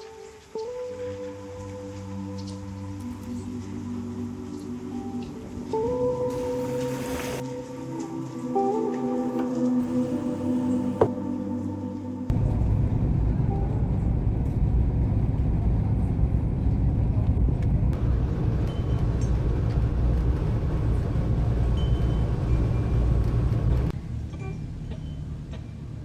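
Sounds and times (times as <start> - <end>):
low rumbling noise: 12.3 - 24.3.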